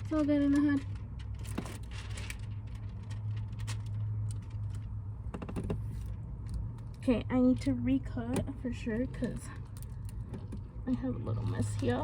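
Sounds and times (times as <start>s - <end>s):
film rustling and clicks: 0.0s - 7.0s.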